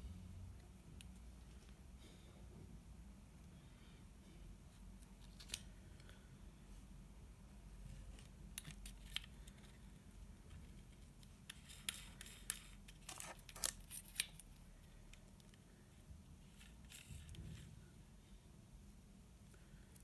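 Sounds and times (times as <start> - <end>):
small metal parts clicking: 11.2 - 14.7.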